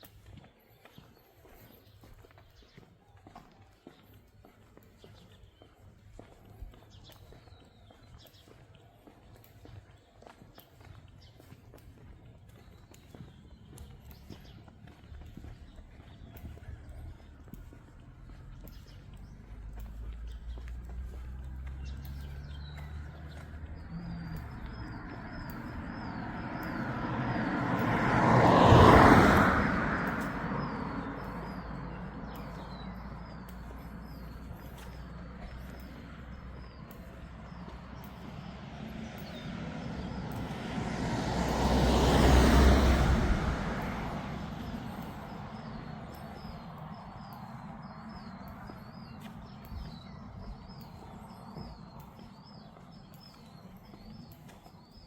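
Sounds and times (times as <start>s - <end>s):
vehicles passing by: 0.0s - 55.0s
bird chirping: 3.8s - 28.0s, 43.8s - 55.0s.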